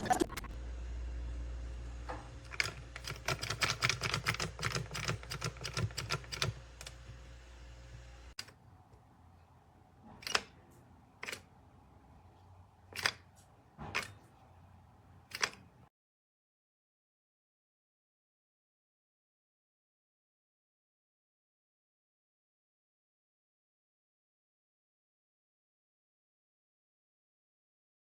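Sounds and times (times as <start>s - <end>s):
low steady hum: 0.0s - 3.8s, 4.6s - 15.3s
rapid irregular clicking and clattering: 2.4s - 7.0s.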